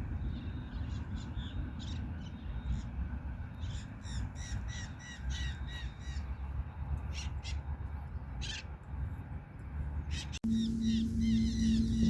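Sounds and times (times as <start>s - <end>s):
birds chirping: 10.1s - 12.0s
harsh rasping bird calls: 10.1s - 12.0s
steady low rumble: 10.4s - 12.0s.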